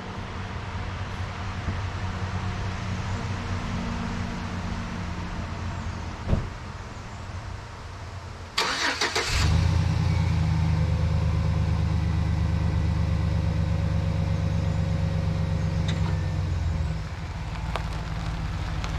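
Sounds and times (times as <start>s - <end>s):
car starter cranking: 8.6s - 9.7s
car engine idling: 8.6s - 18.9s.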